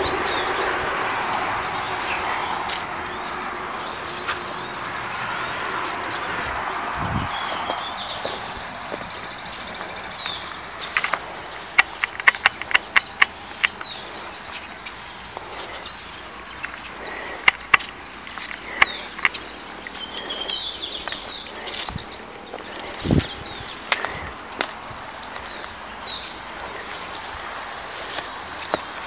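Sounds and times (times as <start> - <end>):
bird chirps: 0.0 - 29.0
insects droning: 0.0 - 29.0
sharp clicks: 10.9 - 14.0, 16.6 - 20.5.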